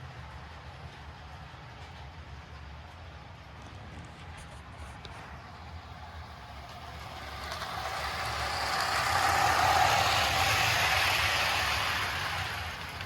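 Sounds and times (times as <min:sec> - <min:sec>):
toy train motor whirring: 0:06.4 - 0:13.0.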